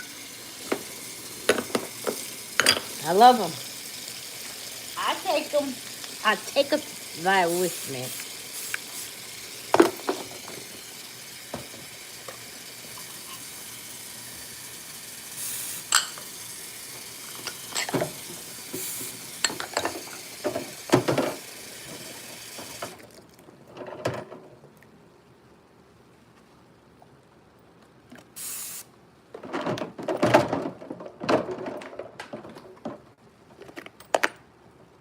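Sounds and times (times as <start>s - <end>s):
tap water running into sink: 0.0s - 23.2s
dishes and cutlery clinking: 1.5s - 3.0s, 15.9s - 16.3s, 19.4s - 20.1s.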